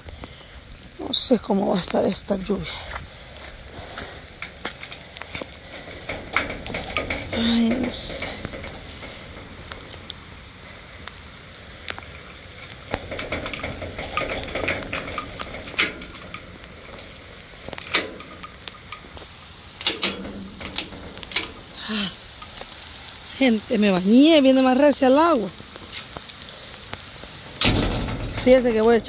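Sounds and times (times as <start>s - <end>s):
steady rain falling: 0.0s - 29.0s
sharp clicks and clinks: 4.4s - 10.5s, 12.9s - 22.6s.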